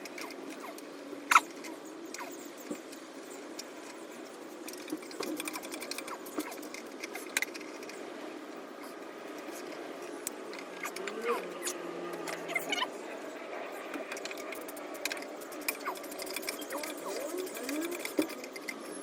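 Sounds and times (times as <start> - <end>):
small engine running: 10.6 - 19.0.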